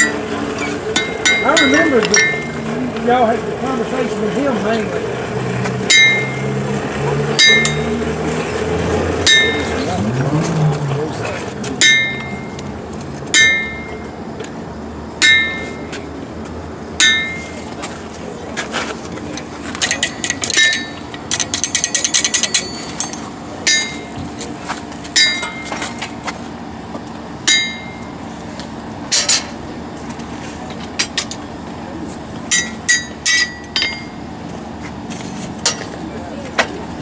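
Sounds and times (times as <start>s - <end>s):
hammer blows on anvil: 0.0s - 2.8s, 5.9s - 6.6s, 7.4s - 8.0s, 9.2s - 10.0s, 11.8s - 12.6s, 13.3s - 14.1s, 15.2s - 15.9s, 17.0s - 17.6s, 19.9s - 24.1s, 25.2s - 25.9s, 27.4s - 28.1s, 32.5s - 34.2s
light metallic clinks: 19.8s - 24.1s.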